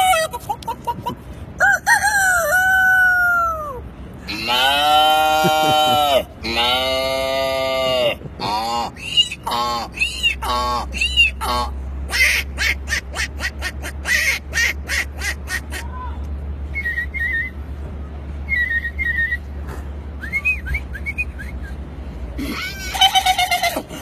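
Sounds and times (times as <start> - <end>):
man imitating animal sounds: 4.3 - 11.8.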